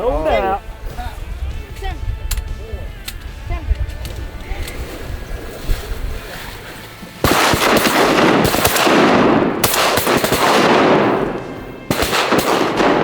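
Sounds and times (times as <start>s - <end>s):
shotgun fire: 7.2s - 13.0s.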